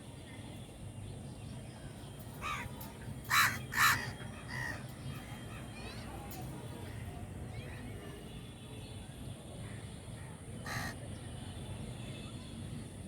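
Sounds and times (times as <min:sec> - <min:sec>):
crows cawing: 0:02.4 - 0:02.7, 0:03.3 - 0:04.8, 0:10.6 - 0:11.0.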